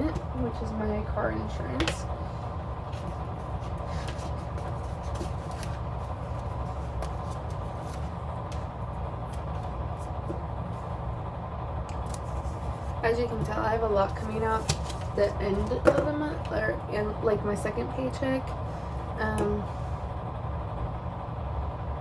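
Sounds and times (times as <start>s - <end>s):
low background hum: 0.0s - 22.0s
paper stickers rustling: 2.9s - 10.4s.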